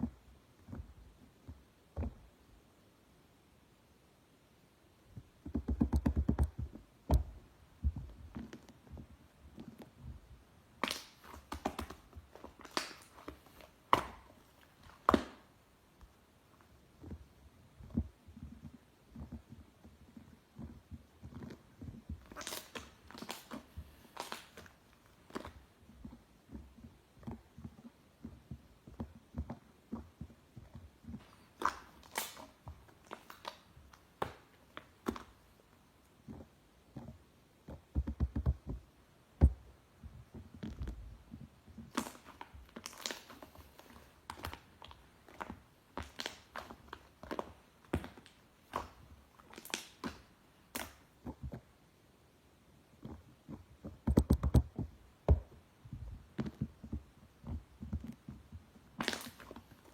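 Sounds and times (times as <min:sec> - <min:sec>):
slime squishing: 0:05.6 - 0:15.6, 0:16.5 - 0:38.9, 0:39.5 - 0:51.8, 0:52.9 - 0:59.9
air pockets popping: 0:53.0 - 0:59.9.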